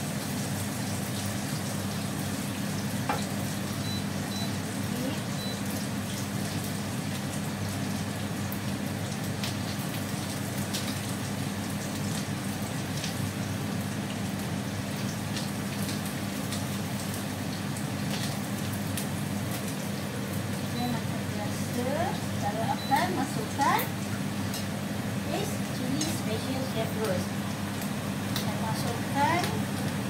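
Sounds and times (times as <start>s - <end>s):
oil crackles and pops: 0.0s - 20.8s, 26.9s - 30.0s
aromatics sizzling in hot oil: 0.0s - 30.0s.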